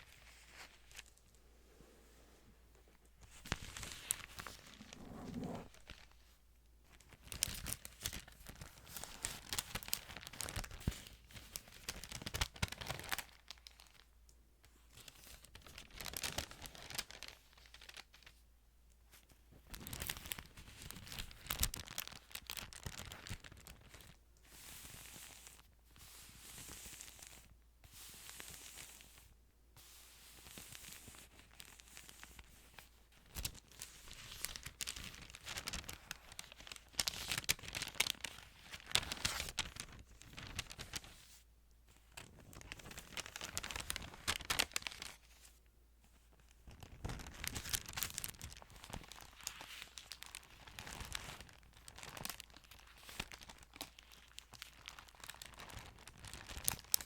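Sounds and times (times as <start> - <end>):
thin pages turning and crinkling: 0.0 - 1.8, 2.8 - 6.3, 6.9 - 14.0, 15.1 - 18.4, 19.7 - 24.1, 30.4 - 45.6, 46.2 - 57.0
page swishes: 3.5 - 6.0.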